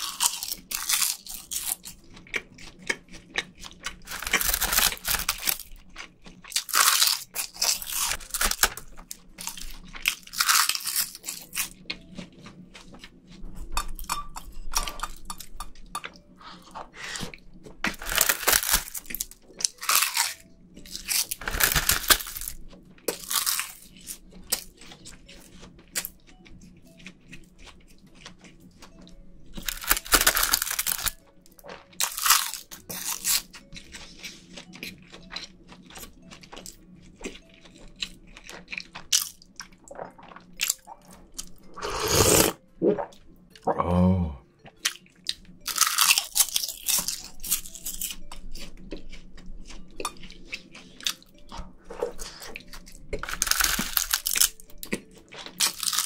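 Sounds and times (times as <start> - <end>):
crispy seaweed crunching: 0.0 - 1.9, 2.8 - 11.8, 17.9 - 24.7, 29.6 - 33.6, 45.6 - 49.1, 52.1 - 56.0.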